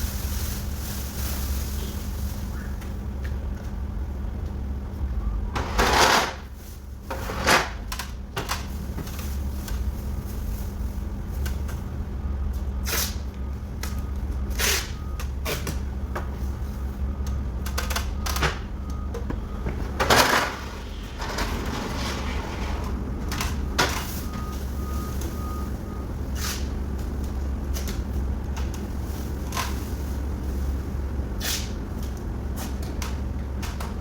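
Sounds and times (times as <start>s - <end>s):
plastic sheeting rustling: 0.0s - 2.7s.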